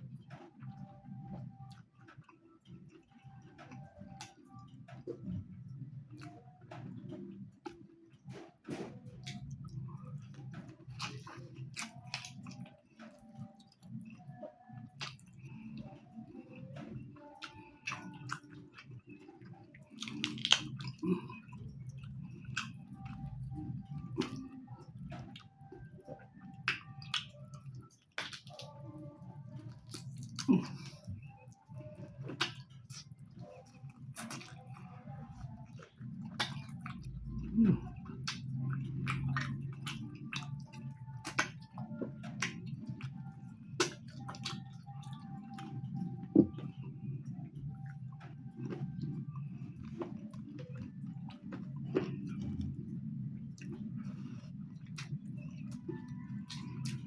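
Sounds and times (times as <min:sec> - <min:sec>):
chewing food: 0:00.0 - 0:57.0
wet mouth clicks and smacks: 0:14.9 - 0:15.6, 0:19.9 - 0:23.2, 0:26.6 - 0:28.8, 0:35.6 - 0:43.1, 0:43.8 - 0:45.7.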